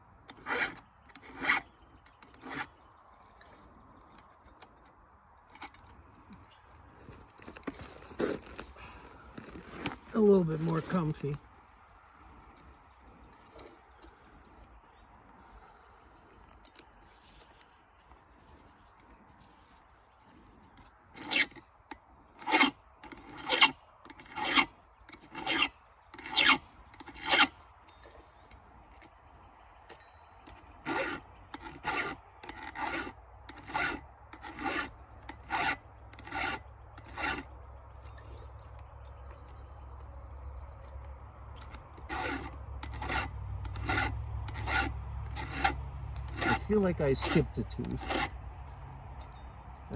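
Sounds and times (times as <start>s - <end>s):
file rasping on chainsaw chain: 0.3s - 2.8s, 21.1s - 28.2s, 29.9s - 38.8s, 41.6s - 48.4s.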